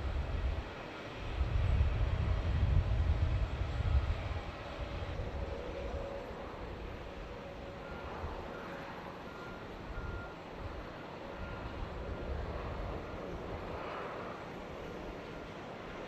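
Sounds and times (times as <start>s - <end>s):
distant jet engines roaring: 0.0s - 16.0s
faint high beeps: 7.7s - 11.8s.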